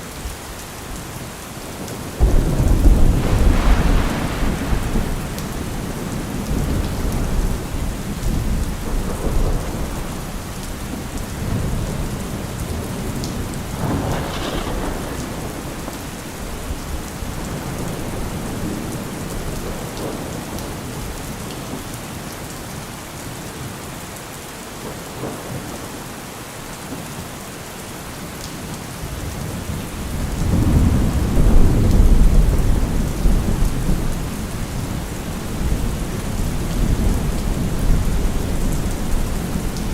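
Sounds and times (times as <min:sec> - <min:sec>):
steady heavy rain: 0:00.0 - 0:39.9
sharp thunder crack: 0:02.2 - 0:10.0, 0:13.6 - 0:18.6
rolling thunder: 0:02.2 - 0:20.6, 0:29.3 - 0:39.9.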